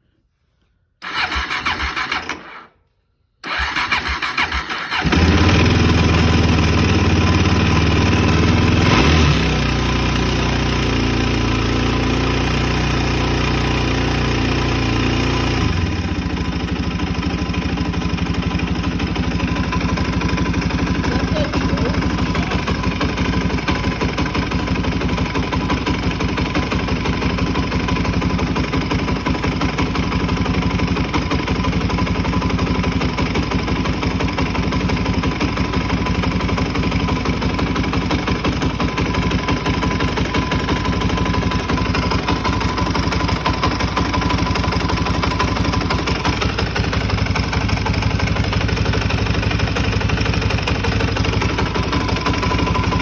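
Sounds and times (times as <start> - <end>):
motorcycle engine idling with knock: 15.9 - 53.0.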